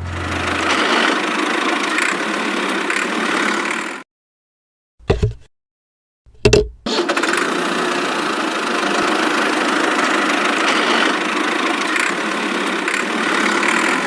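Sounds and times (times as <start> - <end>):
small motor running: 0.0 - 4.0, 6.9 - 14.0.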